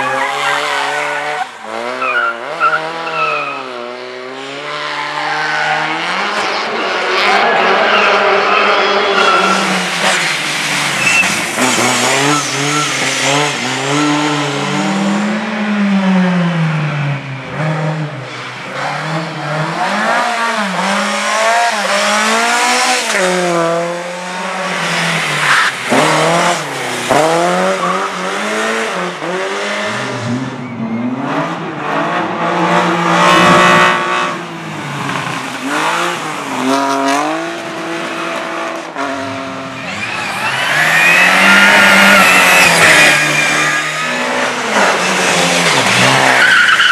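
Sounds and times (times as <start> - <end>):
racing car engines revving: 0.0 - 46.9
tyre squeal: 1.8 - 3.7, 7.4 - 13.4, 39.8 - 45.1, 46.1 - 46.9.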